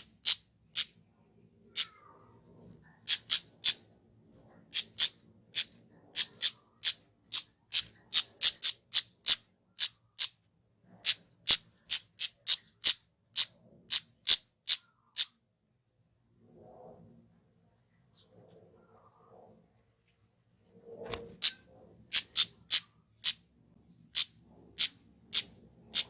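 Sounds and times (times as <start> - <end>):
bird high-pitched calls: 0.0 - 1.0, 1.7 - 2.3, 3.0 - 3.9, 4.7 - 10.4, 11.0 - 15.4, 21.1 - 26.0.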